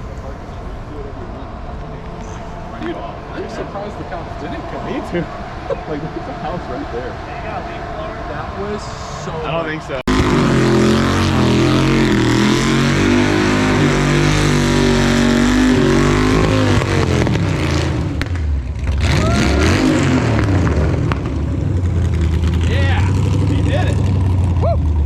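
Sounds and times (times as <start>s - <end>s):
engine revving hard: 6.4s - 24.6s.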